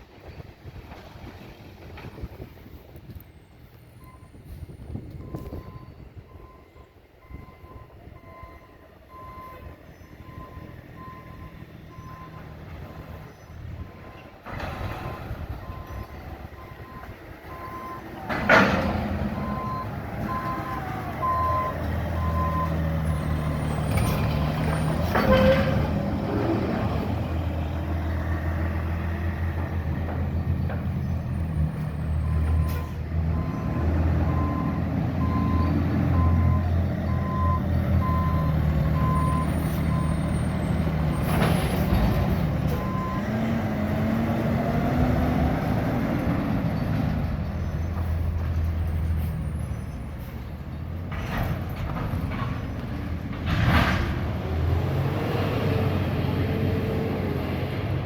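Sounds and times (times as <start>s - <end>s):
truck backup alarm beeping: 4.0s - 26.0s, 31.2s - 45.8s.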